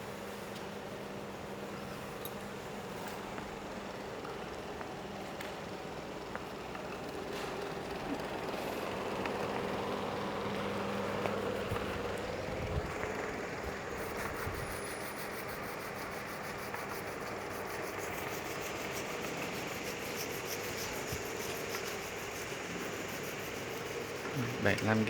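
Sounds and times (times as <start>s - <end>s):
air compressor humming: 7.4s - 25.0s.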